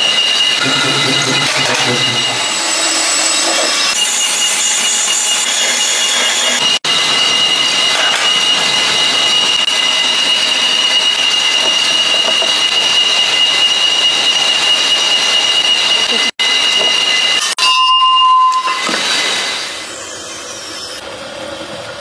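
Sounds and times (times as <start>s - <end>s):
power tool whining: 0.0s - 17.5s.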